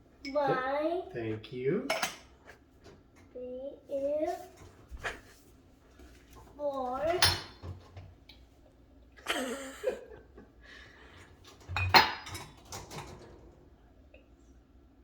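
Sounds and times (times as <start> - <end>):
dishes and cups clattering: 1.8 - 2.6, 7.0 - 8.0, 11.5 - 13.4.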